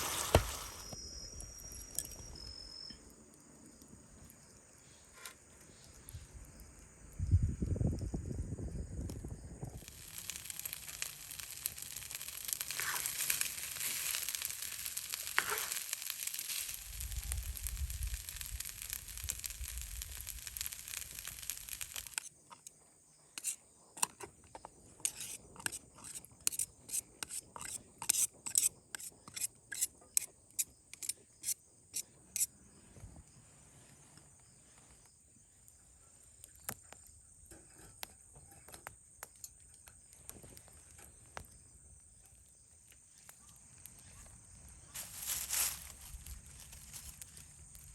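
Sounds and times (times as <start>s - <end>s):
fire crackles and pops: 0.0s - 4.7s, 5.4s - 22.8s, 38.8s - 47.9s
wood fire hissing and sizzling: 0.0s - 39.2s, 40.0s - 47.9s.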